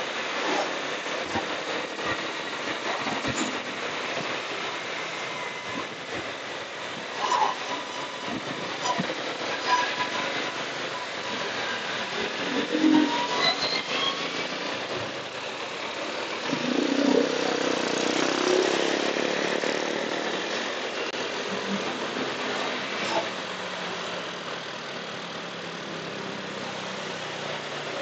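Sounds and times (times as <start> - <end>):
road and wind noise: 0.0 - 28.0.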